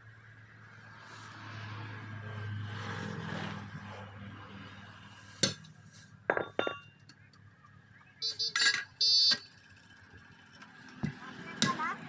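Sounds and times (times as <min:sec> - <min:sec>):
vehicle horn honks: 0:08.2 - 0:09.5.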